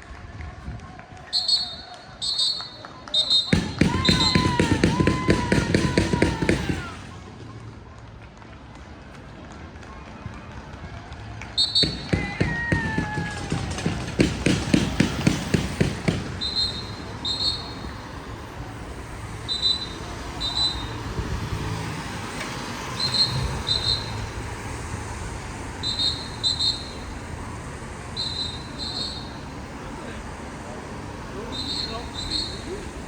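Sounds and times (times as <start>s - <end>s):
street noise: 0.0s - 33.0s
rapid clattering knocks: 11.8s - 16.4s.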